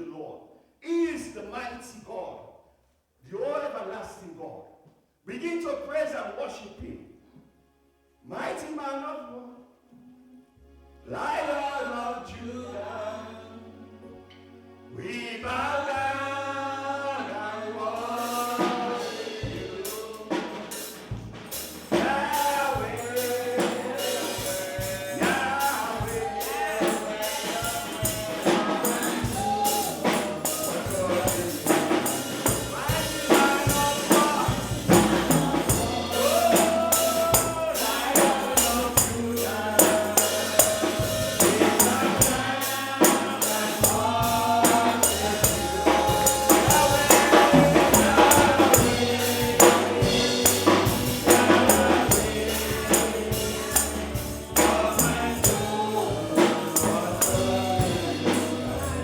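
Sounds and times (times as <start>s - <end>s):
bass: 10.0s - 59.0s
voices singing gospel: 11.1s - 14.2s, 14.9s - 59.0s
drums: 18.0s - 59.0s
tambourine: 18.2s - 59.0s.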